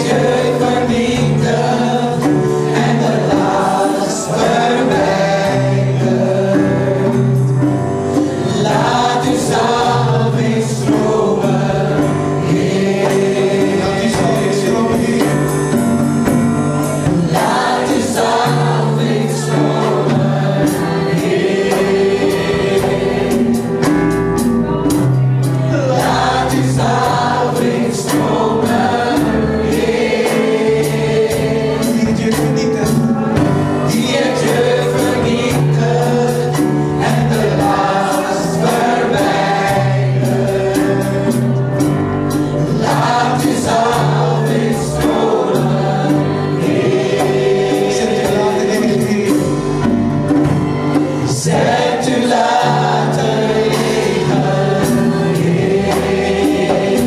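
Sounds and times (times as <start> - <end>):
choir singing gospel song: 0.0 - 57.0.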